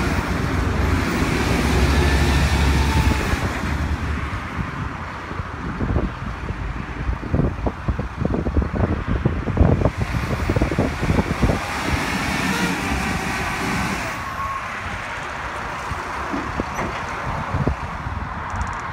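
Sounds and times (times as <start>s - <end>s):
diesel engine running: 0.0s - 4.9s, 9.5s - 16.8s
wind buffeting microphone: 0.0s - 18.9s.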